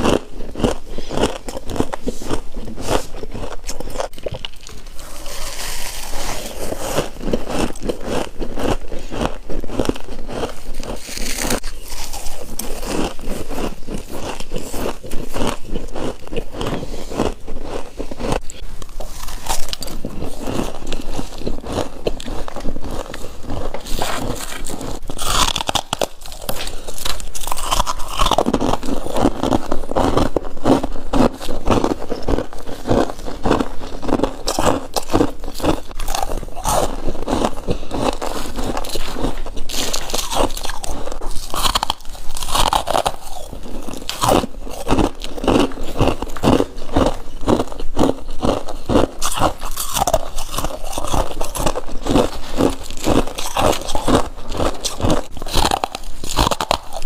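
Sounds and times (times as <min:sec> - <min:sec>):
person crunching frost: 0:00.0 - 0:57.0.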